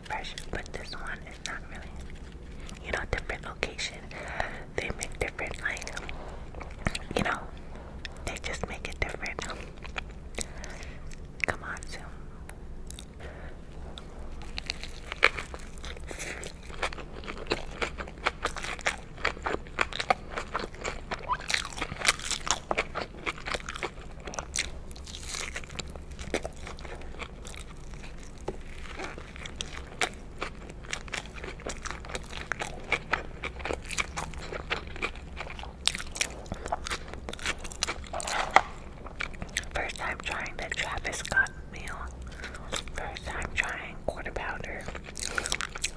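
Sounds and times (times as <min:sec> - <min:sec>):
person chewing burger: 0:00.0 - 0:45.9
lettuce crunching: 0:13.9 - 0:43.8, 0:44.7 - 0:45.9
wet mouth sounds: 0:13.9 - 0:45.9.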